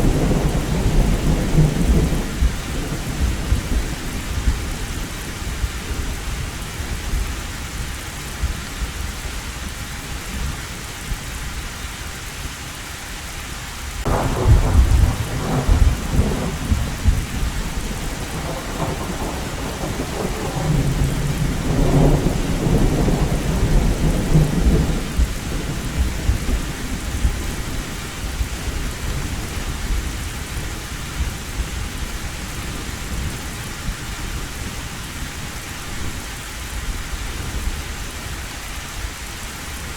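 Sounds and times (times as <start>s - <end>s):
thunder crack and rumbling: 0.0s - 7.4s, 14.0s - 34.8s
heavy rain on a tin roof: 0.0s - 39.9s.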